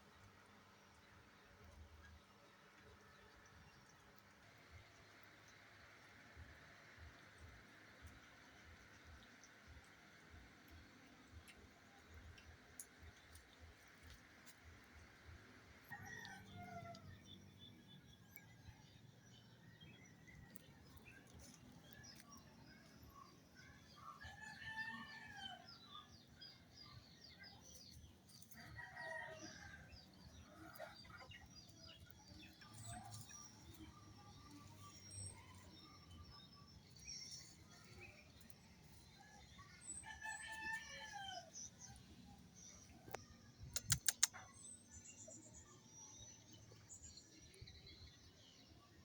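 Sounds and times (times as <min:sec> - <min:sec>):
small birds chirping: 0:08.6 - 0:49.0
faint roosters crowing: 0:15.6 - 0:17.4, 0:23.8 - 0:26.2, 0:27.3 - 0:33.5, 0:37.0 - 0:42.0.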